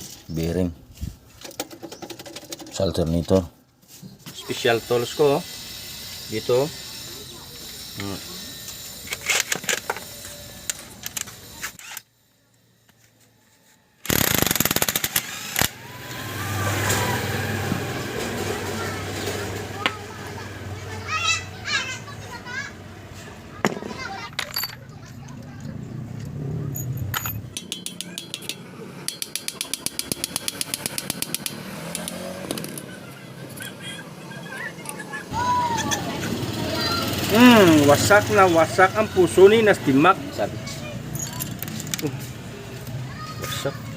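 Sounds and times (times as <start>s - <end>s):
hand tools clicking on metal: 27.2s - 32.9s.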